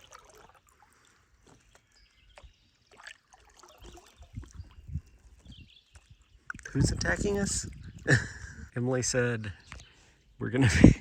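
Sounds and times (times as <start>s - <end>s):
paddle splashes: 0.0s - 7.8s
water trickling off paddle: 0.0s - 8.3s.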